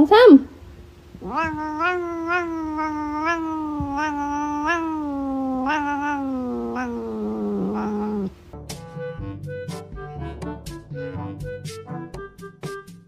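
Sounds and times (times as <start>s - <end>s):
cat yowling: 1.2s - 8.3s.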